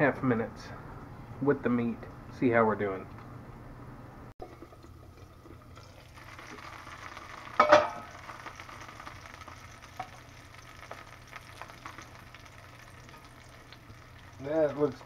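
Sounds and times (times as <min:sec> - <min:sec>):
meat sizzling in a skillet: 0:05.9 - 0:15.0
metal pot lid clanking: 0:07.5 - 0:08.1.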